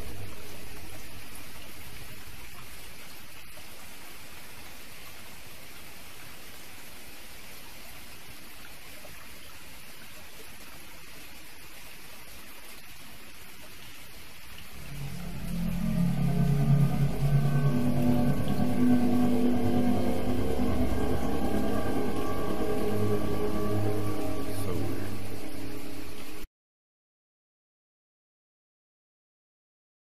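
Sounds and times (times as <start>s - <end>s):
low hum: 0.0s - 3.1s, 14.7s - 26.5s
steady rain-like hiss: 0.0s - 26.5s.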